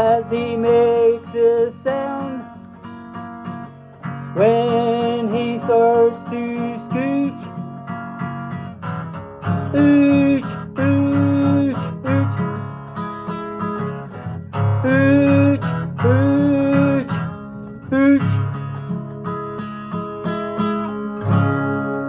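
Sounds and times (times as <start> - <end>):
person singing: 0.0 - 2.5, 4.4 - 7.4, 9.6 - 12.6, 14.6 - 18.6
acoustic guitar strumming: 0.0 - 22.0.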